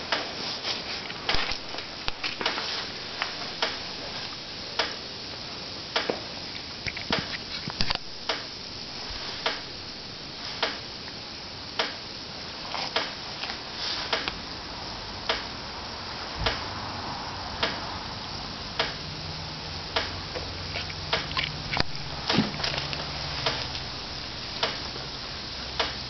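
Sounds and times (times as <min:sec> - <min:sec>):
fizzing hiss: 0:00.0 - 0:26.0
sharp ticks: 0:12.8 - 0:14.4, 0:17.6 - 0:19.0, 0:19.9 - 0:23.9, 0:24.6 - 0:24.9, 0:25.8 - 0:26.0.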